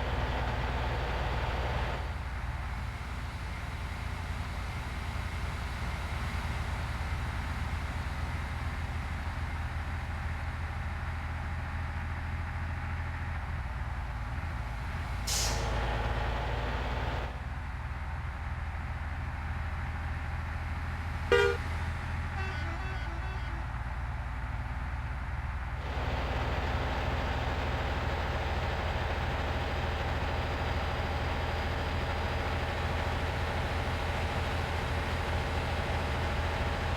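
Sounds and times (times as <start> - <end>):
truck engine droning: 0.0 - 36.9
truck horn toot: 21.3 - 24.3.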